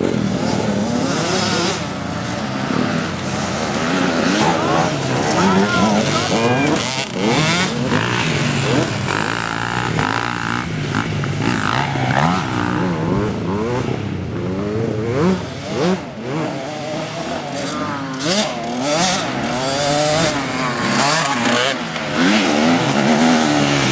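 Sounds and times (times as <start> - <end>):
motocross bike engines revving: 0.0 - 23.9.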